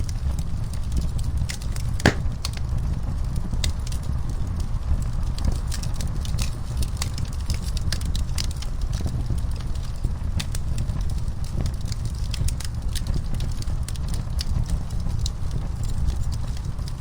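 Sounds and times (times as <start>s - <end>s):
wood fire crackling: 2.1s - 2.6s.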